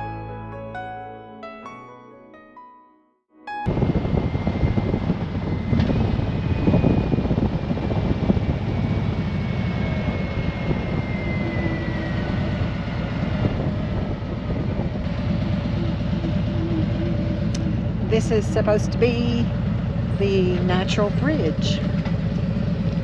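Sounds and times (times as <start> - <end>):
tyre and wind noise: 3.7 - 15.1
faint whine: 3.7 - 21.9
motorcycle engine: 3.7 - 23.0.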